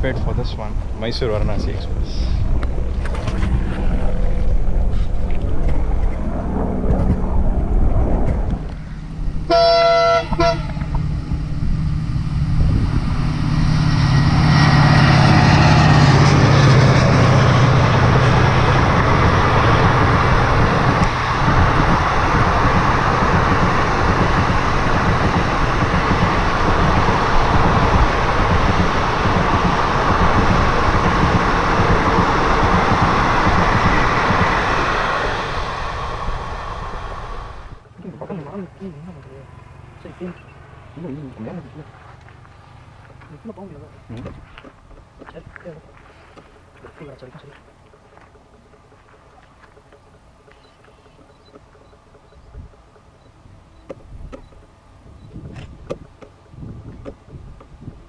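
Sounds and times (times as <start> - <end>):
train passing with rolling rumble: 0.0 - 58.0
train horn blast: 9.4 - 11.2.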